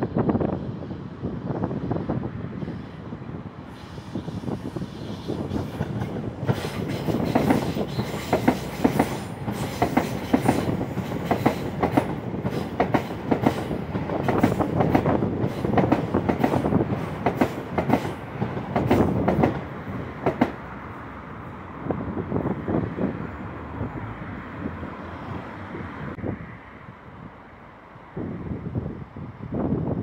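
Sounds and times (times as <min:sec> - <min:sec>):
train rolling rumble: 0:00.0 - 0:30.0
train wheels clicking over rail joints: 0:05.4 - 0:20.6.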